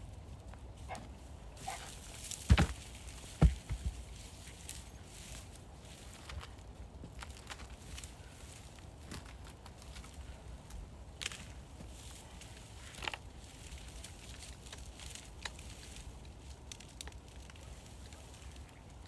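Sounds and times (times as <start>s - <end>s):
light knocks and crackles: 1.6s - 4.8s.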